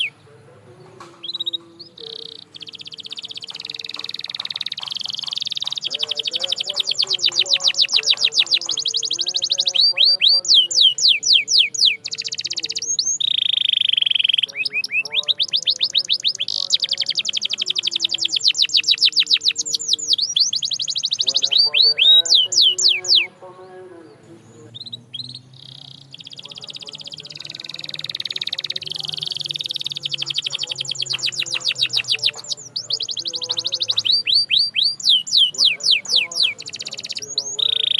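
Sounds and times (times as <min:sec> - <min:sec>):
canary singing: 0:00.0 - 0:37.9
faint bird chirps: 0:00.0 - 0:37.9.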